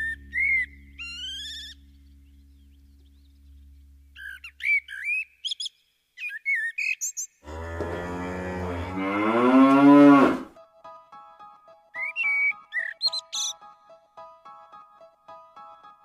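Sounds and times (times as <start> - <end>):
bird warbling whistled phrases: 0.0 - 1.8, 4.2 - 7.3, 12.0 - 13.5
low steady hum: 0.0 - 4.4.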